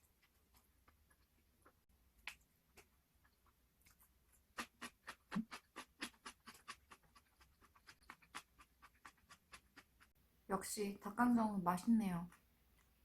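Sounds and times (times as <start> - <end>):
crunchy fried chicken being chewed: 0.0 - 10.2.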